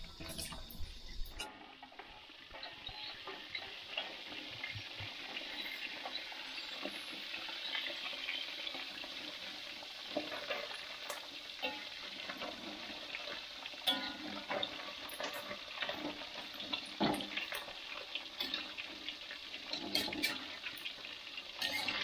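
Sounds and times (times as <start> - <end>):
fish sizzling in hot oil: 0.0 - 22.0
metal spatula stirring: 13.8 - 22.0.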